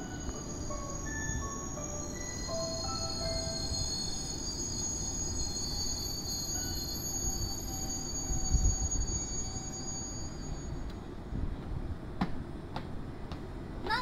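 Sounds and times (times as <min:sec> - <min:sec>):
high-pitched wheel squeal: 0:00.0 - 0:11.0
electric train rumbling: 0:00.0 - 0:14.0.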